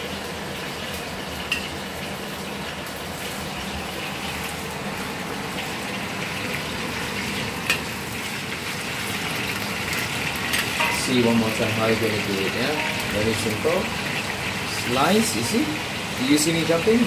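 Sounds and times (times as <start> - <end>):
fish sizzling in hot oil: 0.0 - 17.0.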